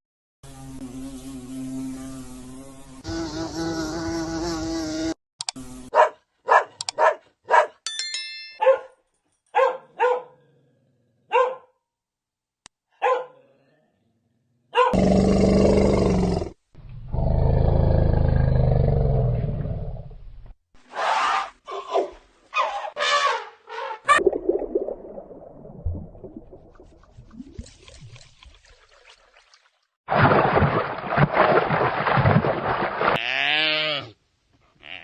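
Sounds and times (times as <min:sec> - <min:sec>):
bark-like animal calls: 0:05.9 - 0:07.8, 0:09.6 - 0:10.5, 0:11.3 - 0:11.7, 0:13.0 - 0:13.5, 0:14.7 - 0:15.0
rough roaring animal calls: 0:15.0 - 0:20.1.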